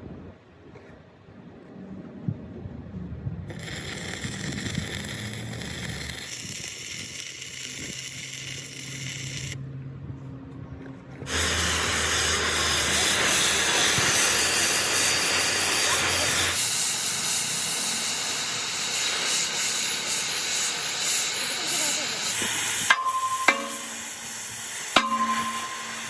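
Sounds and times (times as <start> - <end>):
steady hissing: 3.5 - 9.6, 11.3 - 26.0.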